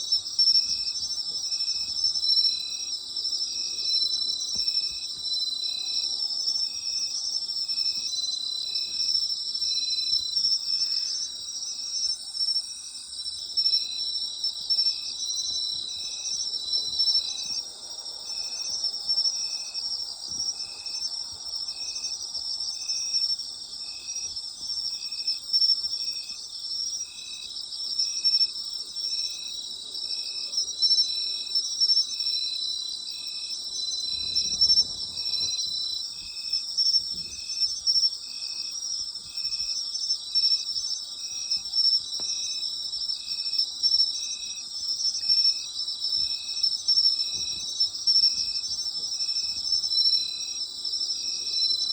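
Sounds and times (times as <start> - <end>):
insect chirping: 0.0 - 51.9
insects trilling: 0.0 - 51.9.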